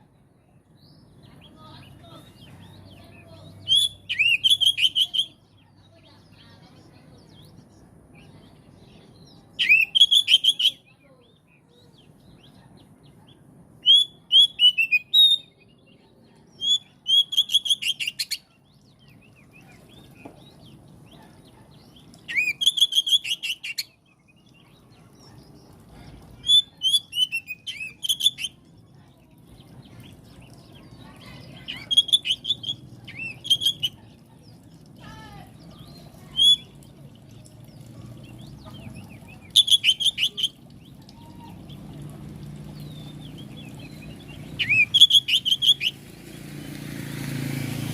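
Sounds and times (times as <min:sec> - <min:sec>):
bird singing whistled phrases: 0:03.6 - 0:05.4, 0:09.6 - 0:10.9, 0:13.8 - 0:15.6, 0:16.5 - 0:18.5, 0:22.3 - 0:24.0, 0:26.4 - 0:28.6, 0:31.6 - 0:34.0, 0:35.8 - 0:36.8, 0:39.2 - 0:41.8, 0:42.9 - 0:46.0.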